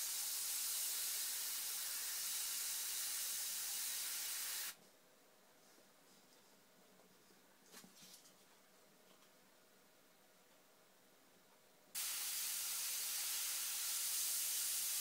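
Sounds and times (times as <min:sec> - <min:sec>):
airbrush hissing: 0:00.0 - 0:04.8, 0:12.0 - 0:15.0.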